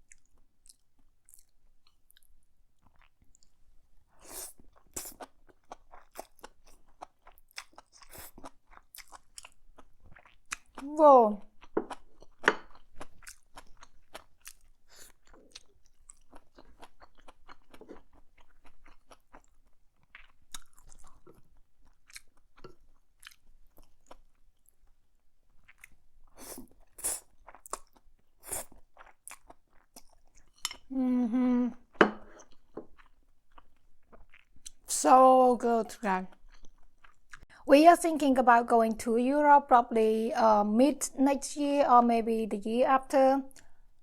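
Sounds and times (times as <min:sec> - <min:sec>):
chewing with wet mouth clicks: 0:00.0 - 0:03.6, 0:04.7 - 0:10.8, 0:11.6 - 0:24.9, 0:25.5 - 0:30.9, 0:32.4 - 0:34.9, 0:36.3 - 0:37.5
person humming mmm: 0:30.9 - 0:31.9.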